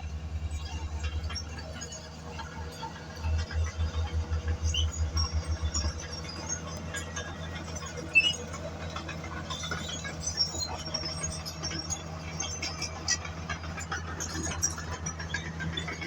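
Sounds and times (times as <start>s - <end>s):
diesel engine low drone: 0.0s - 16.0s
short high squeaks: 8.0s - 8.6s.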